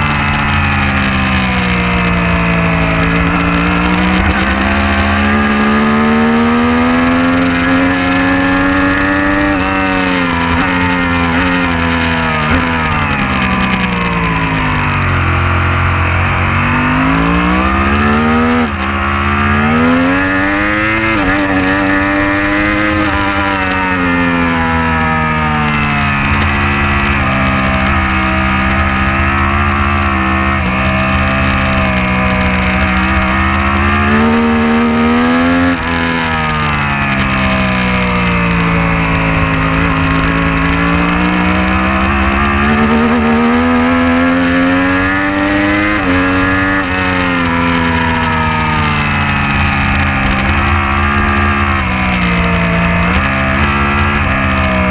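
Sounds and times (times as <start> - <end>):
motorcycle engine racing: 0.0 - 54.9.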